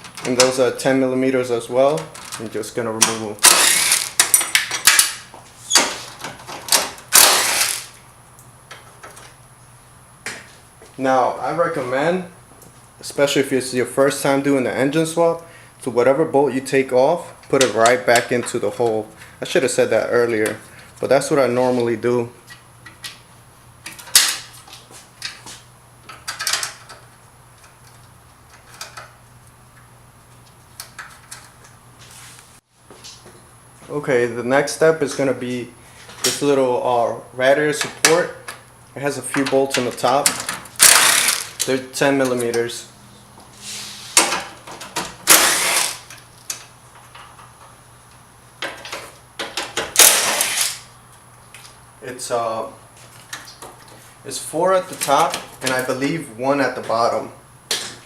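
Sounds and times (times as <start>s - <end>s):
ratchet wrench clicking: 3.5s - 4.5s, 40.8s - 41.7s.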